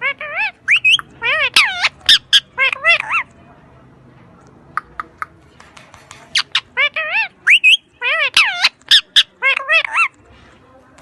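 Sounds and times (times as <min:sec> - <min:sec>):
parrot squawking: 0:00.0 - 0:03.3, 0:06.3 - 0:10.1.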